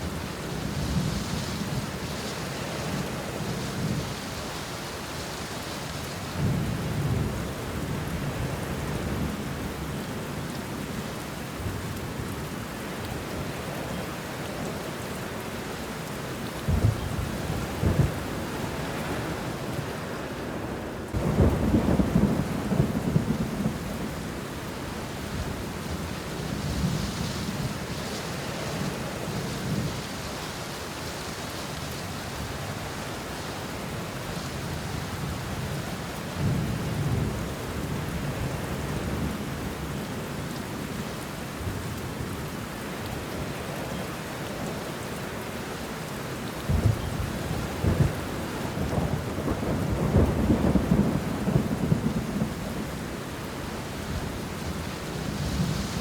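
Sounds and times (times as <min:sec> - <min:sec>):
rain falling on leaves: 0:00.0 - 0:56.0
thunder rumbling: 0:16.7 - 0:19.4, 0:21.1 - 0:24.6, 0:46.6 - 0:56.0.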